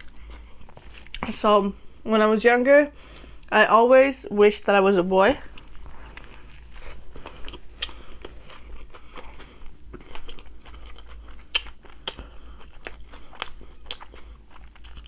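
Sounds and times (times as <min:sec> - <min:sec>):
person chewing and crunching food: 0:00.0 - 0:01.4, 0:05.4 - 0:15.0.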